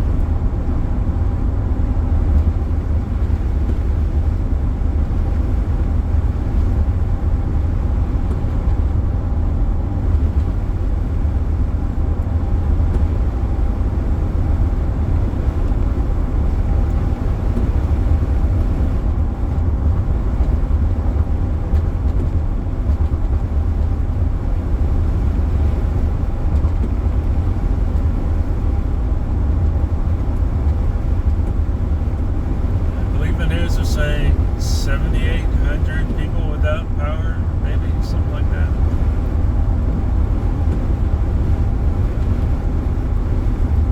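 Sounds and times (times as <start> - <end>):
car road and engine noise: 0.0 - 43.9
faint steady hum: 30.8 - 40.1.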